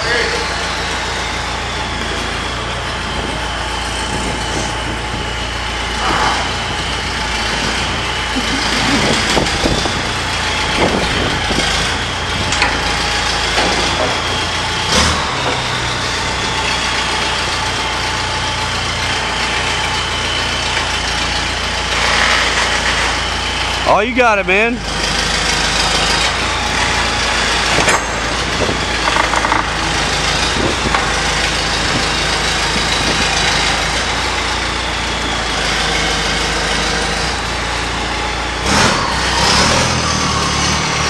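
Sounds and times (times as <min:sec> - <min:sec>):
vehicle engine running: 0:00.0 - 0:41.0
knocks and clunks: 0:12.3 - 0:15.9, 0:27.7 - 0:32.2.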